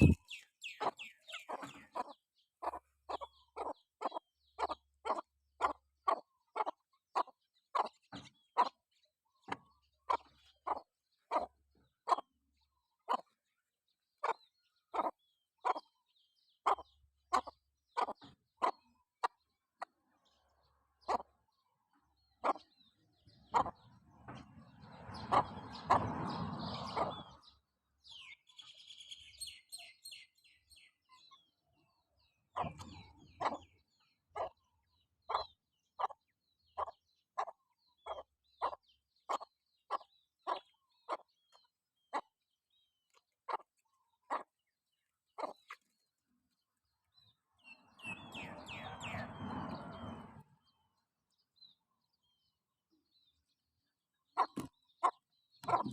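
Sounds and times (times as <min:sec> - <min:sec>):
high chirps: 0:00.0 - 0:01.2
chickens clucking: 0:00.0 - 0:13.5, 0:14.1 - 0:28.2, 0:31.9 - 0:50.8, 0:54.3 - 0:55.9.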